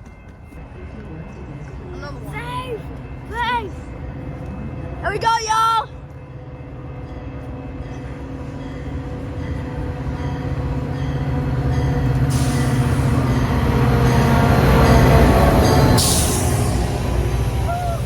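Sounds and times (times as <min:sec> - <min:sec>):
crossing bell ringing: 0:00.0 - 0:18.0
train rumbling past: 0:00.0 - 0:18.0
wheels hissing on rails: 0:12.2 - 0:14.0, 0:15.2 - 0:18.0.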